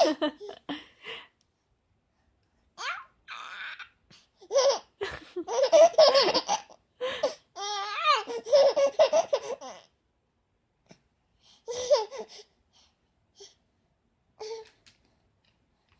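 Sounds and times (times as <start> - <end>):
baby squealing: 2.8 - 3.9
baby laughing: 2.8 - 9.9.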